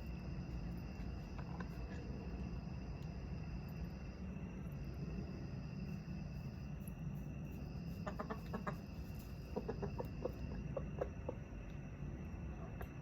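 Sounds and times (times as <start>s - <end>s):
rooster clucking softly: 8.0s - 11.4s.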